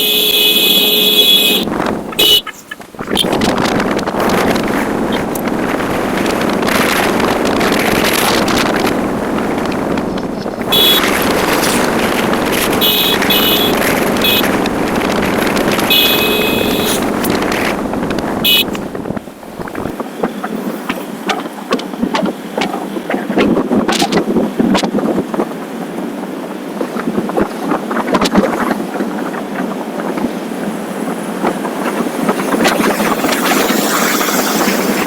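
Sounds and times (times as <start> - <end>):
short high-pitched tones: 0.0 - 2.5, 10.7 - 11.2, 12.8 - 14.6, 15.8 - 17.1, 18.4 - 18.8
motorcycle engine: 0.0 - 19.9
wind rushing over microphone: 0.0 - 35.0.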